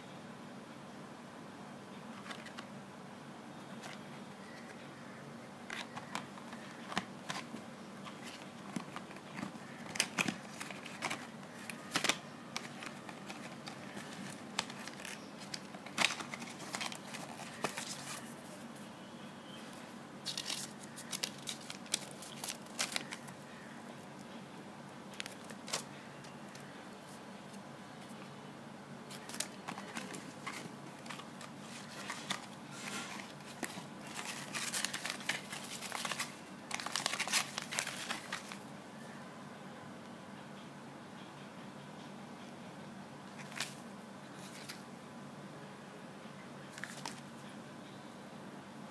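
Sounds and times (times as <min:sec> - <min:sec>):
faint low hum: 0:00.0 - 0:48.9
cardboard box and sachets crinkling: 0:05.7 - 0:18.5, 0:20.2 - 0:23.7, 0:25.1 - 0:26.7, 0:29.1 - 0:38.6.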